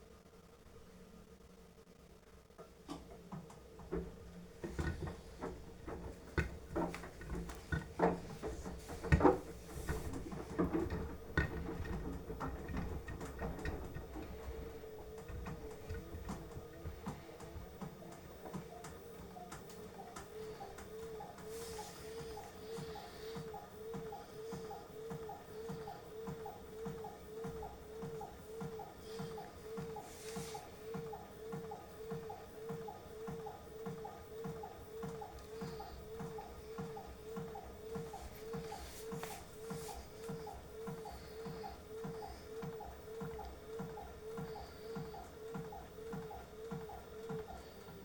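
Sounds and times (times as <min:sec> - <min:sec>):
washing machine motor humming: 0:02.4 - 0:48.0
wet laundry tumbling in drum: 0:03.8 - 0:17.2.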